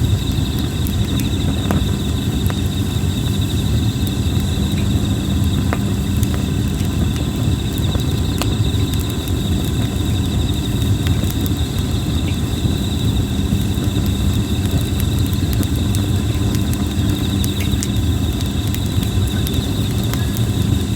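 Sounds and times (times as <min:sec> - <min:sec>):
campfire crackling: 0:00.0 - 0:20.9
insects trilling: 0:00.0 - 0:20.9.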